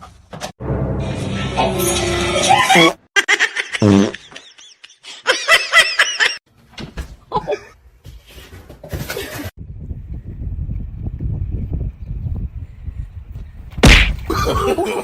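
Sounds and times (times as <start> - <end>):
people laughing: 2.5 - 6.4, 14.3 - 15.0.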